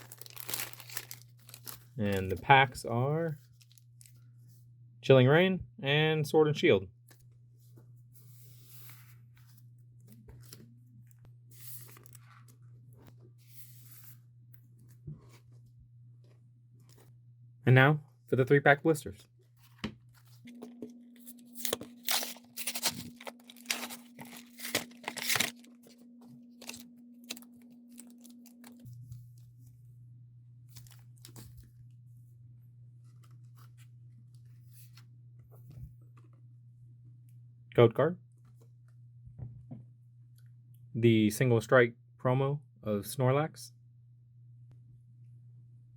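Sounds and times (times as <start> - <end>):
packaging rustling: 0.0 - 2.4, 20.2 - 29.0
low electrical hum: 0.0 - 45.9.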